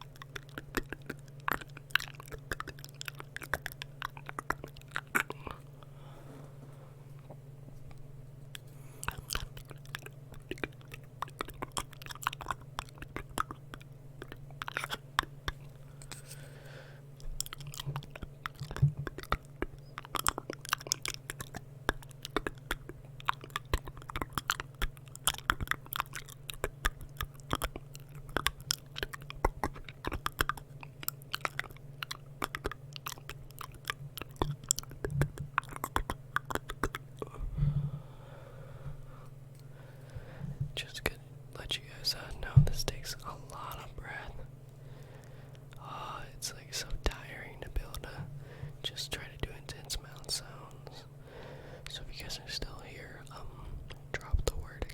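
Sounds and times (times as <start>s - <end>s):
wet tongue and lip clicks: 0.0s - 5.8s, 7.9s - 16.4s, 17.2s - 37.4s, 45.0s - 51.1s, 51.8s - 54.9s
steady low hum: 0.0s - 54.9s.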